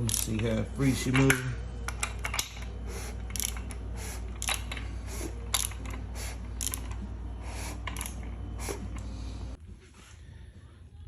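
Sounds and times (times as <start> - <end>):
ratchet wrench clicking: 0.0 - 7.1, 7.7 - 9.0.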